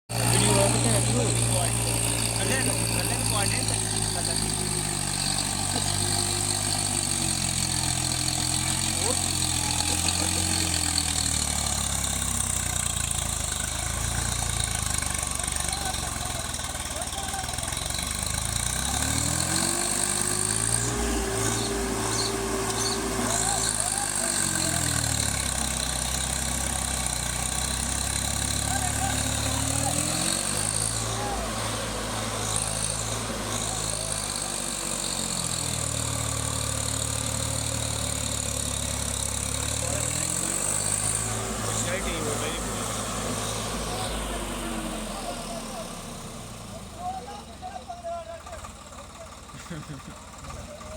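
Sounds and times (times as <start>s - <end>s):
tractor engine idling: 0.1s - 50.9s.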